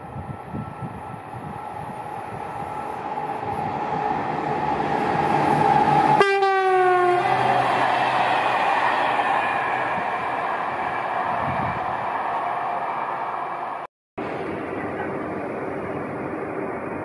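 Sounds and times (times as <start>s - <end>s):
train passing: 0.0s - 17.0s
train horn blast: 6.1s - 7.6s.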